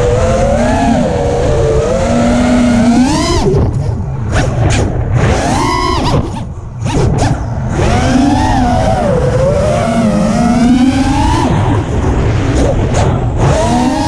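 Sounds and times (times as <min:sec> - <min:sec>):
drone motors whining: 0:00.0 - 0:14.0
wind rumble on microphone: 0:00.0 - 0:14.0.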